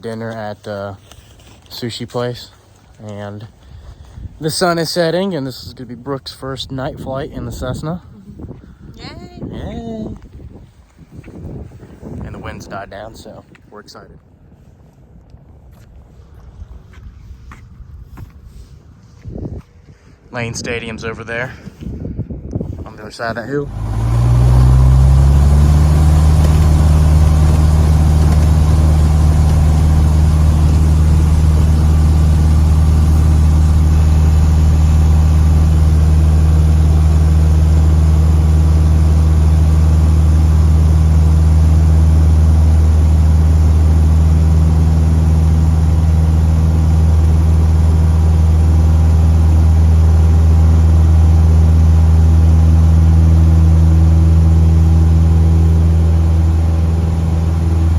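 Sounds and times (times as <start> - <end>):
airplane engine and propeller droning: 22.8 - 57.9.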